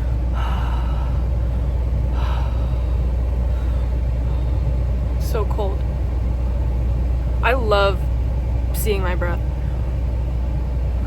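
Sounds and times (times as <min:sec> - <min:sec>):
person breathing out: 0:00.0 - 0:04.8
car engine idling: 0:00.0 - 0:11.0.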